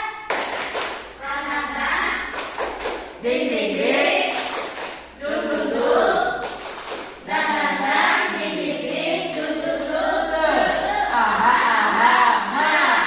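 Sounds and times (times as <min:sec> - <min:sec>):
group of people singing: 0:03.2 - 0:06.6, 0:07.2 - 0:13.0.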